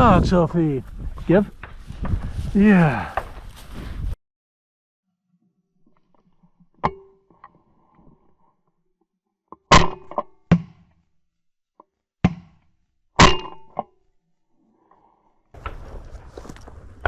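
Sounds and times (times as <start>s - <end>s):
crunching footsteps: 0.2s - 4.2s, 15.6s - 17.0s.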